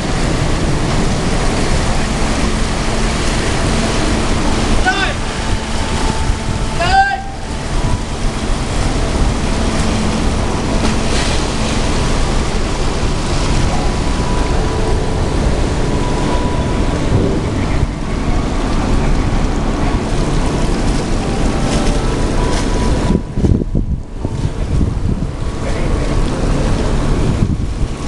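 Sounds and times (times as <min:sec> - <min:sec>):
sea wash: 0:00.0 - 0:28.0
wind rushing over microphone: 0:00.0 - 0:28.0.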